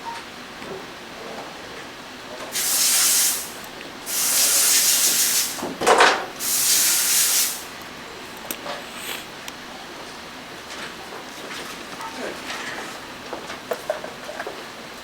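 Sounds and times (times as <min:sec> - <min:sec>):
compressed air hissing: 0:02.6 - 0:05.7, 0:06.4 - 0:07.8, 0:08.8 - 0:09.4.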